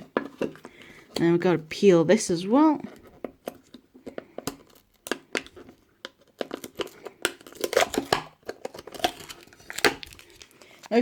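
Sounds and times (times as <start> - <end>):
plastic packaging crinkling and tearing: 2.8 - 11.0.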